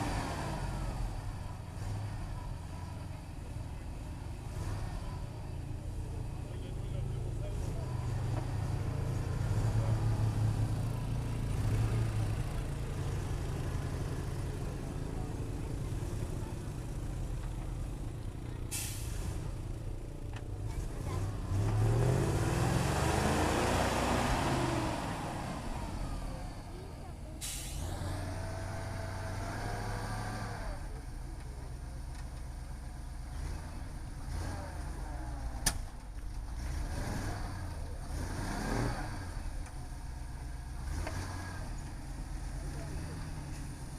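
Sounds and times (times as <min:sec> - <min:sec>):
truck engine revving: 0:07.6 - 0:15.5, 0:20.6 - 0:31.0, 0:33.1 - 0:43.9.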